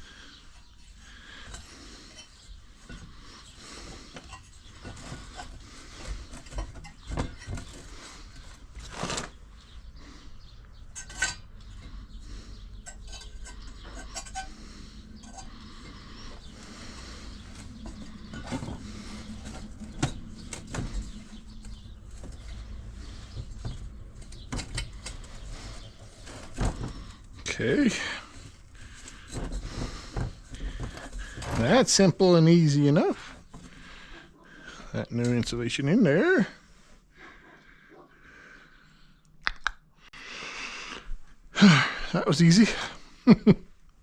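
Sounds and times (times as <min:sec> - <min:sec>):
metal clinks and knocks: 0:12.8 - 0:14.6.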